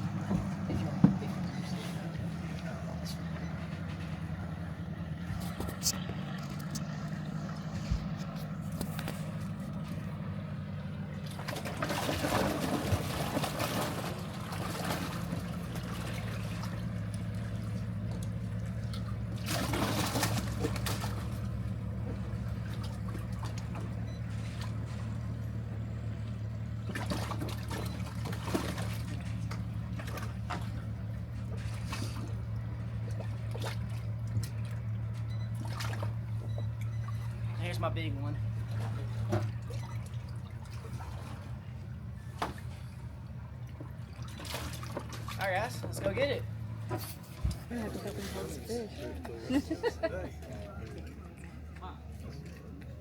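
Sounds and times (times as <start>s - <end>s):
low machine hum: 0.0s - 53.0s
water splashing and pouring: 11.0s - 25.2s, 26.8s - 37.2s, 38.5s - 41.7s, 42.3s - 45.6s.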